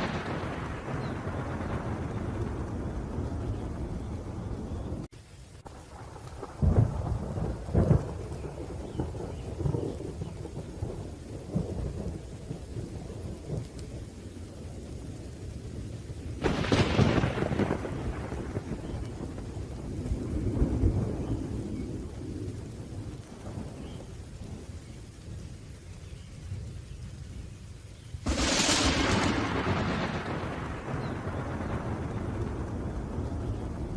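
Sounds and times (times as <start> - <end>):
sharp thunderclap: 0.0 - 5.1, 5.8 - 13.8, 16.4 - 24.6, 28.2 - 33.9
low rolling thunder: 0.0 - 33.9
rain: 0.0 - 33.9.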